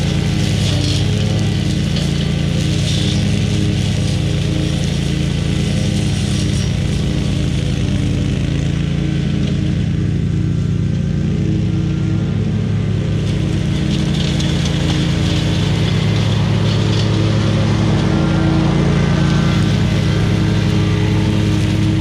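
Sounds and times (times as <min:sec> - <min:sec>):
mower engine running: 0:00.0 - 0:22.0.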